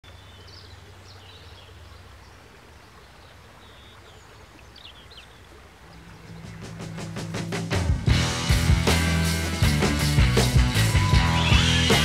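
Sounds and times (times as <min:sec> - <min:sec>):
small birds chirping: 0:00.0 - 0:07.3.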